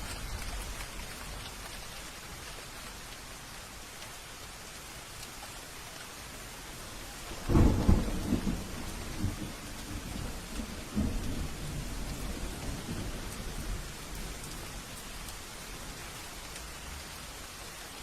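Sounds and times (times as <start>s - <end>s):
steady rain: 0.0s - 18.0s
thunderclap: 7.3s - 14.3s
low thunder rumbling: 7.3s - 15.2s.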